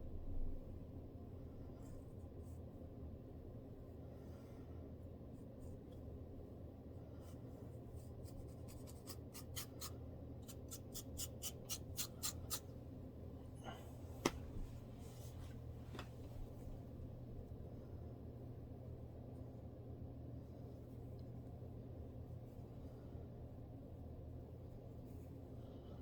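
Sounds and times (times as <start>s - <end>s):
low steady hum: 0.0s - 26.0s
scratching scalp: 7.3s - 12.7s.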